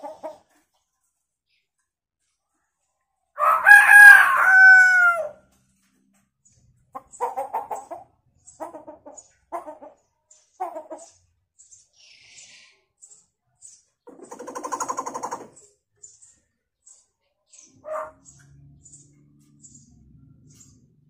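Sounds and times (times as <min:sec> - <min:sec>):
bird mimicking chicken clucks: 0:00.0 - 0:00.5, 0:07.0 - 0:10.0, 0:10.6 - 0:11.2, 0:14.1 - 0:15.6
bird mimicking rooster crow: 0:03.4 - 0:05.4.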